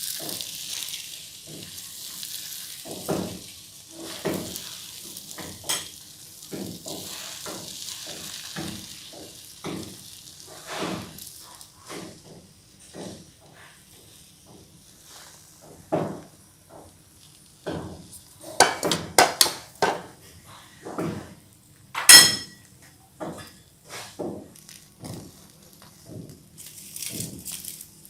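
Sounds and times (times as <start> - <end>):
cookware knocking and clattering: 18.6 - 20.1, 22.0 - 22.6
ringing metallic clink: 22.1 - 22.6.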